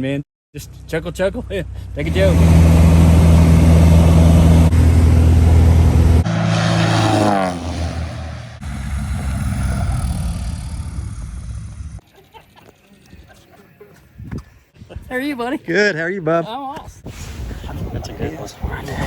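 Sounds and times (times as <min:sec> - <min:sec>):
propeller plane engine drone: 0:02.0 - 0:12.0.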